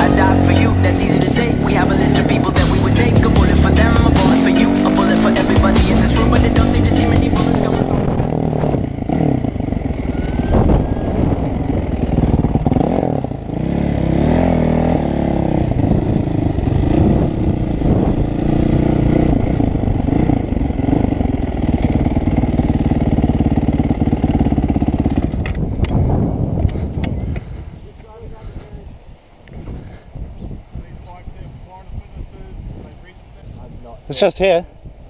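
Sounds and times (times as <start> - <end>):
dirt bike engine revving: 0.0 - 27.3.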